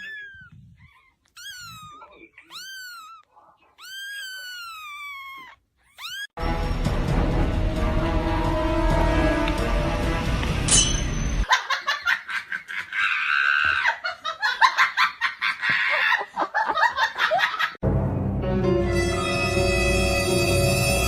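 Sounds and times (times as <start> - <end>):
background music: 6.4 - 11.4, 17.8 - 21.0
high-pitched laughter: 11.5 - 17.8.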